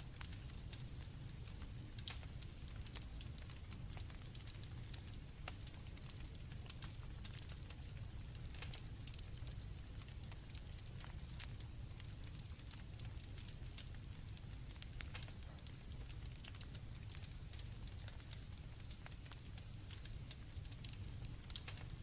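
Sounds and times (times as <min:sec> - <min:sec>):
campfire crackling and popping: 0:00.0 - 0:22.0
crickets chirping: 0:07.9 - 0:22.0.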